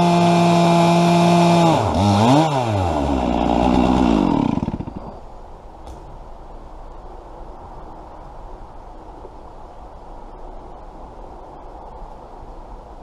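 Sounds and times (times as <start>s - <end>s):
chainsaw running at full throttle: 0.0s - 5.2s.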